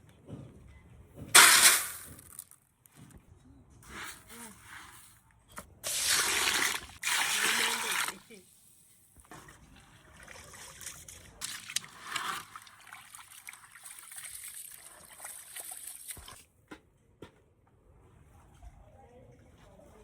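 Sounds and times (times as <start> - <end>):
water trickling and splashing: 9.2 - 16.4.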